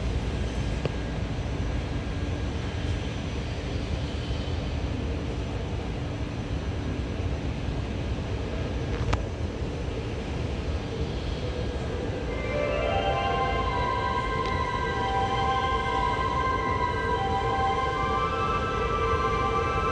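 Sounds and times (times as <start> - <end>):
faint whining tones: 9.0 - 19.9.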